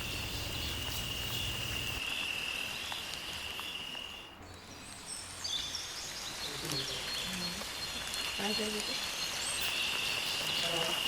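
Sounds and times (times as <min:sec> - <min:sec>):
cricket trilling: 0:00.0 - 0:04.2, 0:08.2 - 0:11.0.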